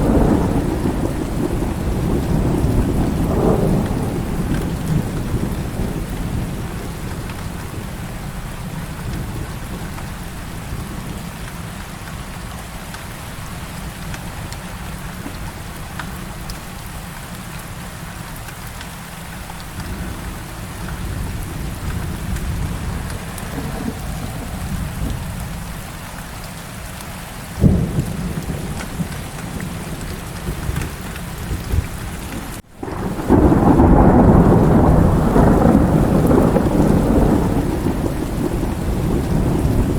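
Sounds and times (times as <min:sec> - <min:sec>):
loud thunderclap: 0:00.0 - 0:08.0, 0:19.8 - 0:25.8, 0:27.6 - 0:39.9
thunder rumbling: 0:00.0 - 0:11.3, 0:19.4 - 0:26.6, 0:27.6 - 0:39.9
heavy rain falling: 0:00.0 - 0:39.9.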